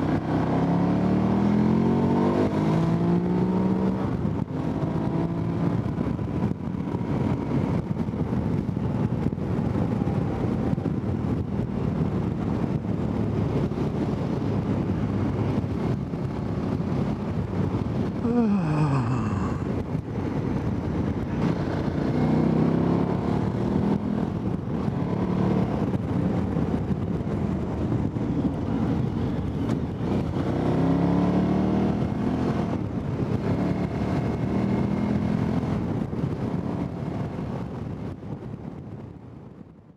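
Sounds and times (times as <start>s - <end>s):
wind noise on microphone: 0.0s - 39.9s.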